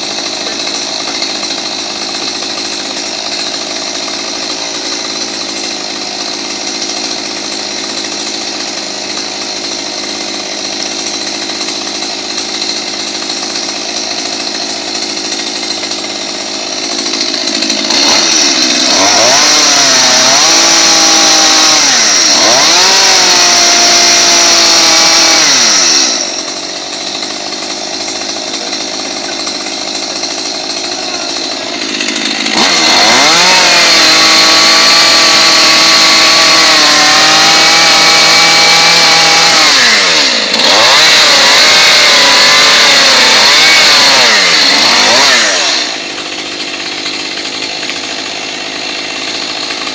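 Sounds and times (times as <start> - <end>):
chainsaw revving and cutting: 0.0 - 49.9.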